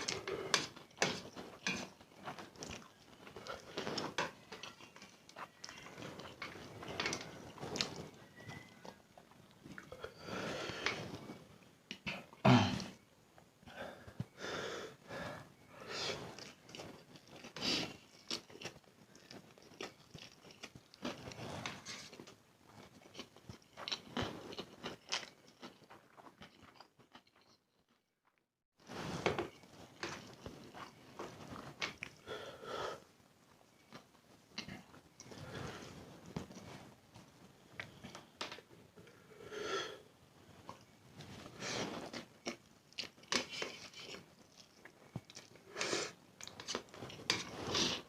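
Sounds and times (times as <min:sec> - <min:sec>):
chewing noodles: 0:00.0 - 0:10.1, 0:16.2 - 0:28.0, 0:29.5 - 0:32.2, 0:41.5 - 0:48.0.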